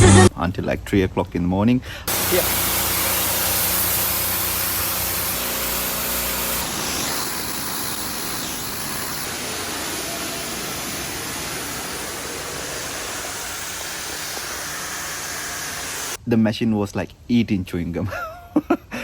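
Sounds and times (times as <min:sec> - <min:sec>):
machine engine humming: 0:02.1 - 0:16.2
steam cleaner spray hissing: 0:02.1 - 0:16.2.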